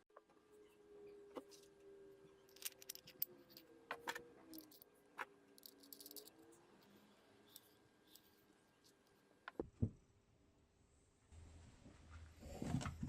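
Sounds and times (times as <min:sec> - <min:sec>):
clicks and taps of small objects: 0:02.5 - 0:06.4.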